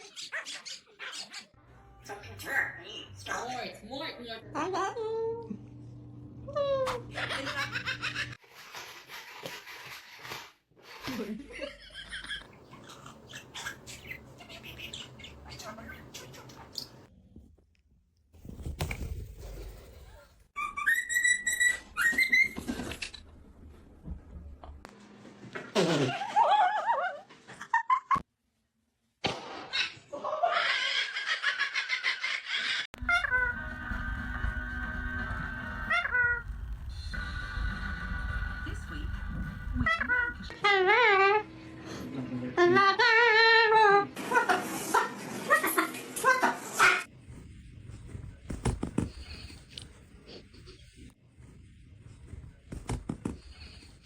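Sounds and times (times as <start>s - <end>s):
laughter-like sounds: 7.0s - 8.4s, 11.0s - 12.6s, 25.7s - 28.2s, 29.9s - 32.9s, 44.2s - 46.7s.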